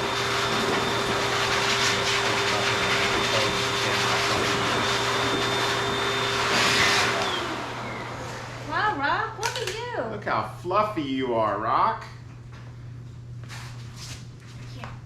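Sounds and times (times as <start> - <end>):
grooming dryer blowing and whining: 0.0 - 9.2.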